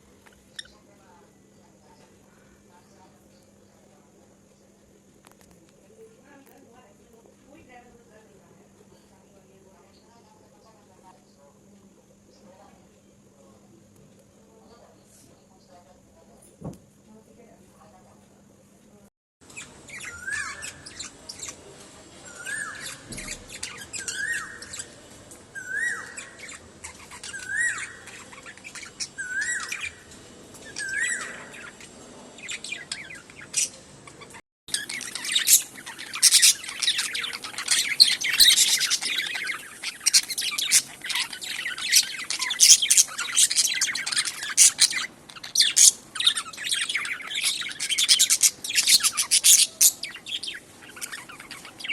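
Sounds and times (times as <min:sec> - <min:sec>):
budgie chattering and warbling: 0:30.8 - 0:51.9
budgerigar rising call: 0:34.7 - 0:51.9.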